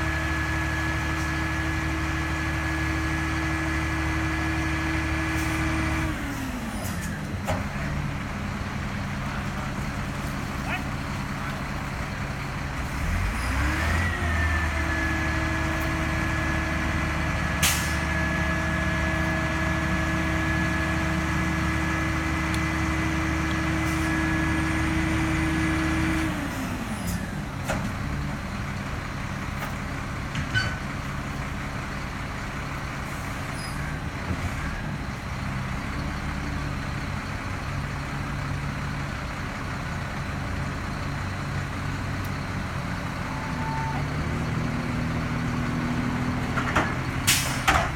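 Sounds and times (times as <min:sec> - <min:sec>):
diesel engine revving and idling: 0:00.0 - 0:47.9.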